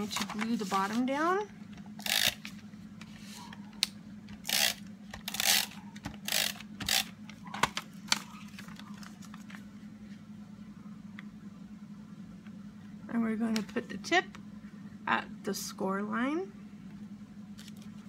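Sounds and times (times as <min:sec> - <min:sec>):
paper handled: 0:00.0 - 0:01.2, 0:07.3 - 0:09.8
low steady hum: 0:00.0 - 0:18.0
tape runner rasping: 0:02.0 - 0:08.7.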